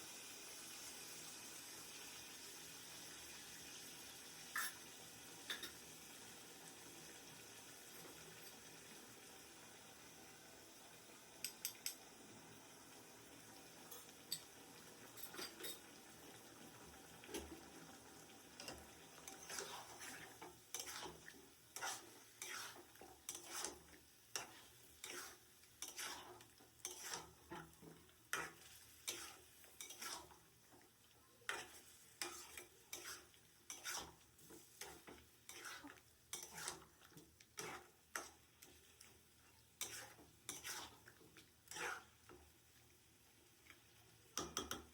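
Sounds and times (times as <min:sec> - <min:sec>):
food sizzling: 0:00.0 - 0:44.9
utensil scraping in a pot: 0:15.1 - 0:15.9, 0:18.6 - 0:30.9, 0:31.5 - 0:42.5.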